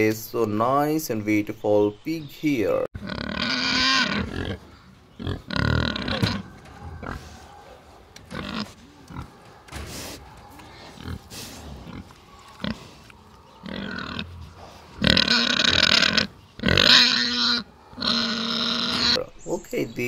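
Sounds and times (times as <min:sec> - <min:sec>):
piglets squealing loudly: 0:03.0 - 0:04.6, 0:15.0 - 0:19.2
piglets grunting: 0:03.0 - 0:19.3.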